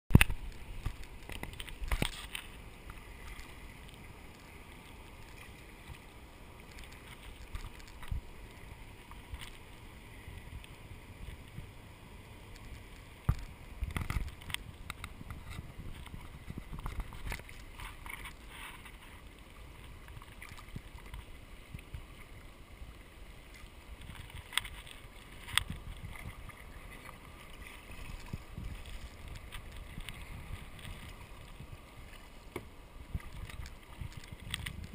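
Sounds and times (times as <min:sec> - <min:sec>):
paddle strokes splashing: 0:12.6 - 0:34.9.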